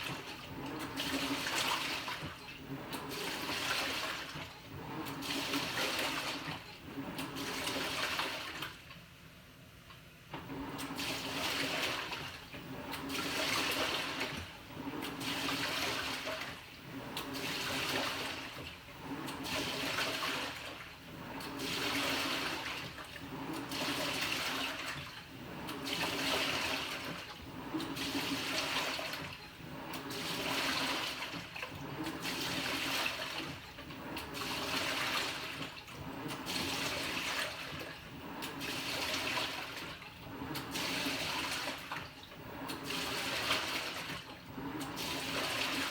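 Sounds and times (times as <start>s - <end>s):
washing machine sloshing water: 0.0s - 9.0s, 10.3s - 45.9s.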